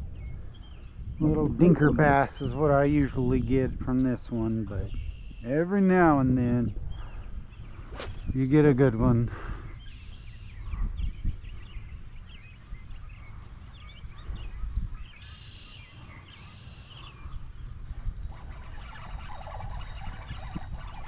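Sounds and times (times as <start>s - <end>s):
birds chirping and trilling: 0.0s - 21.0s
wind rumbling on microphone: 0.0s - 21.0s.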